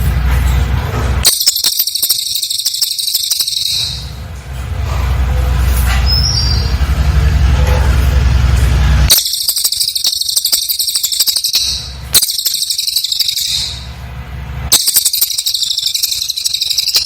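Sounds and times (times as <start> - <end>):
bird high-pitched trill: 1.2 - 4.3, 5.9 - 6.8, 9.1 - 17.0.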